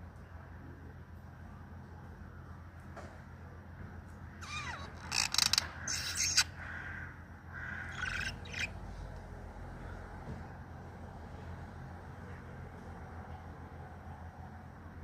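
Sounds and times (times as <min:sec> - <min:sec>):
parrot scratchy chirps: 0:04.4 - 0:06.6, 0:07.6 - 0:08.8.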